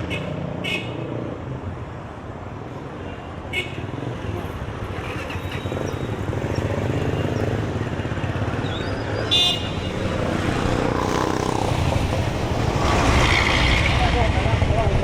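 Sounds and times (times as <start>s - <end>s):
street traffic rumble: 0.0s - 15.0s
motorcycle engine running: 10.2s - 13.6s.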